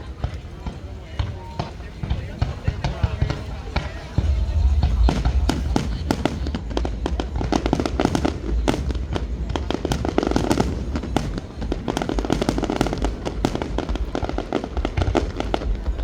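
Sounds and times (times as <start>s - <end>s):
fireworks crackling and banging: 0.0s - 16.0s
low rumble: 3.2s - 9.8s.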